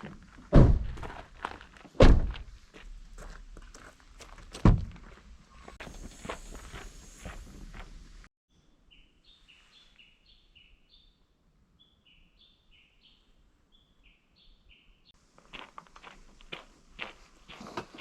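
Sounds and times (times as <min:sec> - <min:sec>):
footsteps crunching on ground: 0:00.0 - 0:08.2, 0:15.2 - 0:18.0
songbird singing: 0:08.5 - 0:15.2.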